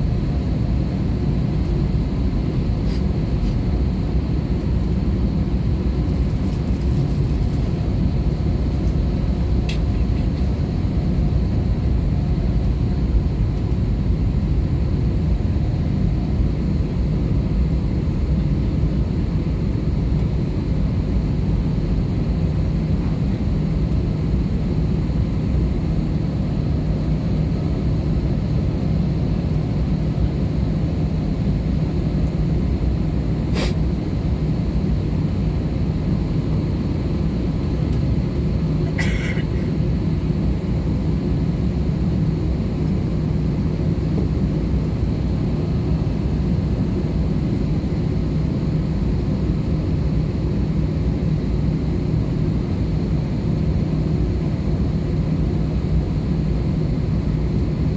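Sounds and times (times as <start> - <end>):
airliner cabin noise: 5.6 - 57.9.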